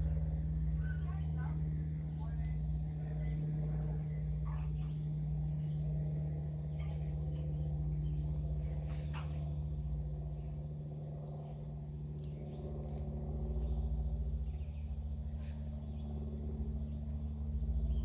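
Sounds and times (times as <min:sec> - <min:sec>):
steady low hum: 0:00.0 - 0:18.0
hummingbird chirps: 0:09.9 - 0:10.5, 0:11.4 - 0:13.0.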